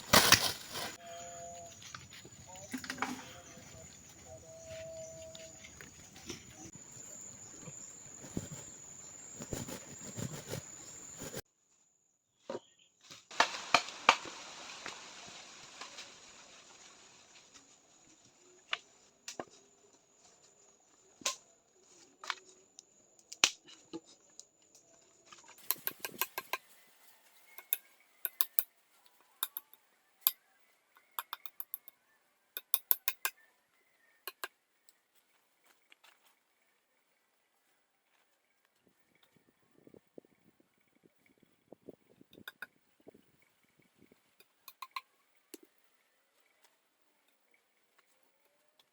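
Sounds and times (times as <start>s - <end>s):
sharp knocks and clicks: 27.6s - 28.6s, 31.2s - 31.9s, 32.6s - 33.3s.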